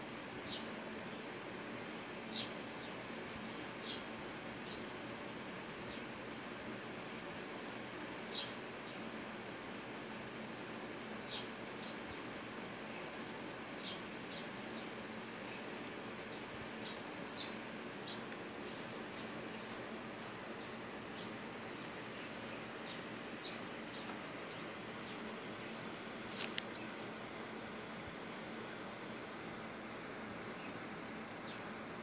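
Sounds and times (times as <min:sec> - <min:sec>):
steady background hiss: 0:00.0 - 0:32.0
small birds chirping: 0:00.4 - 0:01.3, 0:02.3 - 0:06.3, 0:08.0 - 0:09.2, 0:11.2 - 0:31.8.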